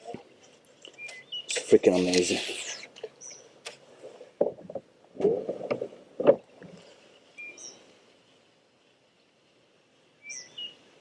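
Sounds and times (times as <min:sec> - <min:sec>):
water splashing against kayak: 0:00.0 - 0:08.6
faint bird chirps: 0:07.4 - 0:07.8, 0:10.2 - 0:10.8.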